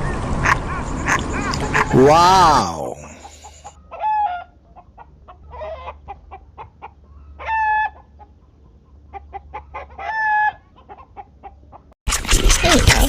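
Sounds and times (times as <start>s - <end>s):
chicken drawn-out calls: 0.4s - 4.5s, 5.5s - 6.6s, 7.4s - 8.2s, 9.1s - 11.6s.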